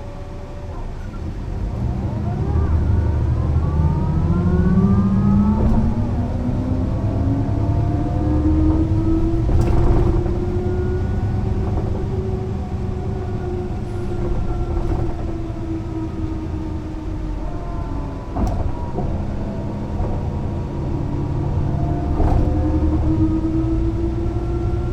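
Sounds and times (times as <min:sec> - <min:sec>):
bus diesel engine running: 0:00.0 - 0:24.9
knock or rattle: 0:05.5 - 0:06.5, 0:08.9 - 0:12.5, 0:13.7 - 0:16.3.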